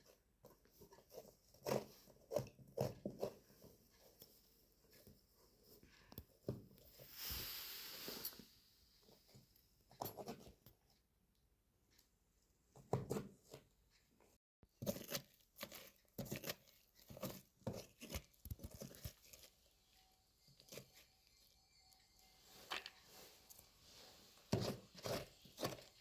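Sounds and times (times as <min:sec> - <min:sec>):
faint handling rustles and scrapes: 0:00.0 - 0:10.9, 0:12.7 - 0:26.0.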